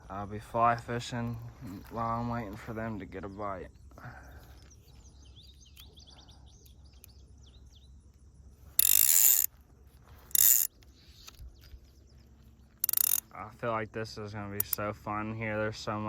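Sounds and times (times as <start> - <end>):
faint bird chirps: 2.8 - 8.7, 9.5 - 13.4
fly reel drag ratcheting: 8.8 - 9.5, 10.3 - 11.4, 12.8 - 13.3.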